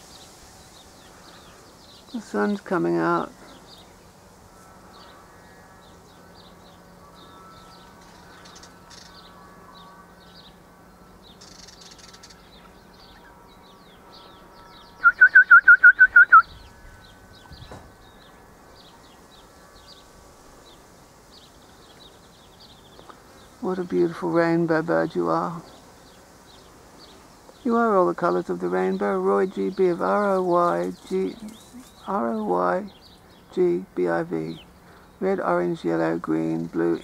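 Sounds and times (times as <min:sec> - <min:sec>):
bird calling sharp notes: 0:04.5 - 0:20.1.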